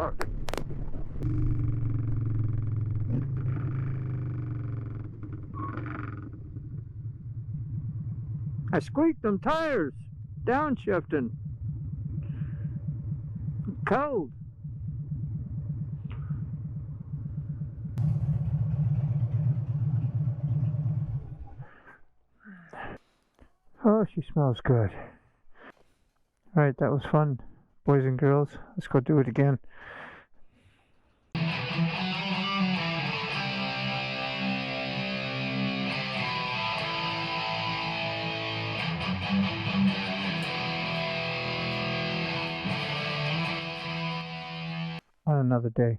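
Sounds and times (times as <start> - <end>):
motorcycle engine idling: 1.2 - 7.8, 17.2 - 21.4
strummed guitar chords: 31.4 - 45.0.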